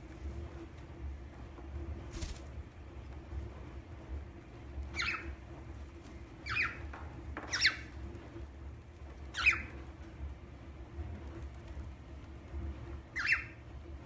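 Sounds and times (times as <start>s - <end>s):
parrot chirping: 4.9s - 5.3s, 6.4s - 6.8s, 7.5s - 7.9s, 9.3s - 9.8s, 13.1s - 13.6s.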